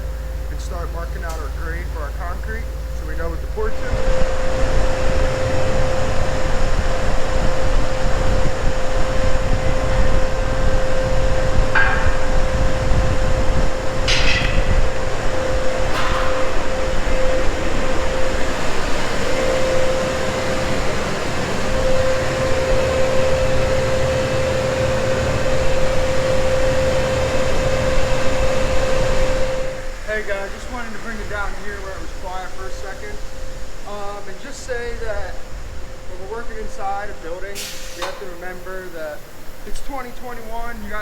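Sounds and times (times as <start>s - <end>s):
machinery drone: 0.0s - 41.0s
sharp knocks: 11.7s - 12.7s, 14.0s - 15.2s, 15.9s - 17.4s.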